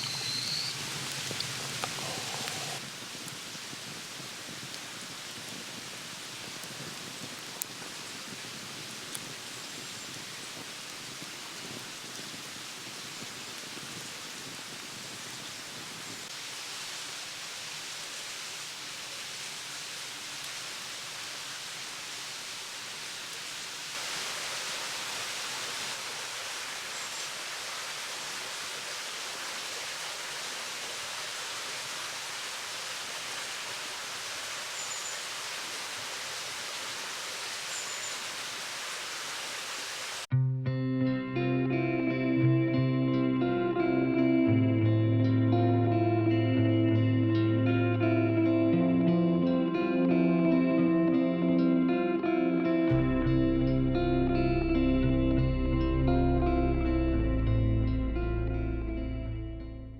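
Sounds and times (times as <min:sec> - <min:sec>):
rushing water: 0:00.0 - 0:40.3.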